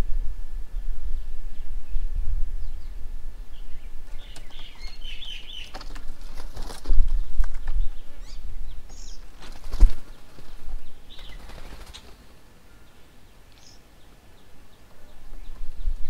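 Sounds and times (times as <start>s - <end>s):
low rumble: 0.0s - 6.3s
birds chirping: 0.7s - 16.0s
clicks and wing flutter: 4.0s - 7.8s, 8.9s - 12.3s.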